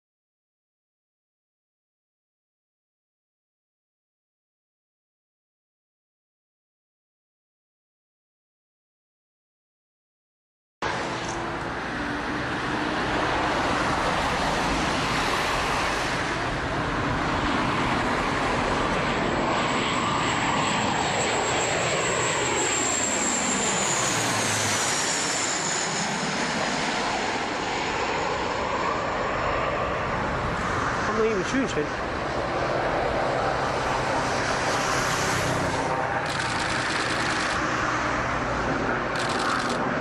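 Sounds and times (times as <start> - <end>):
high engine whine: 10.8 - 40.0
plane engines flying low past: 10.8 - 40.0.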